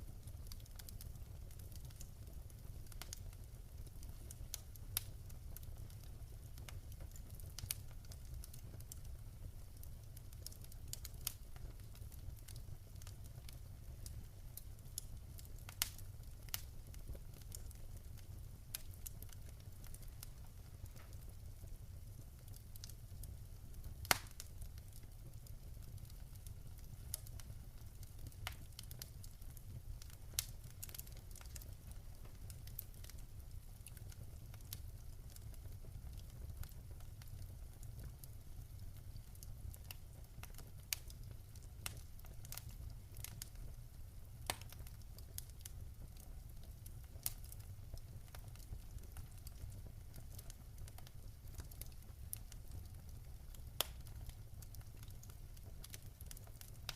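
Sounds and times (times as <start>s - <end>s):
wood fire crackling: 0.0s - 56.9s.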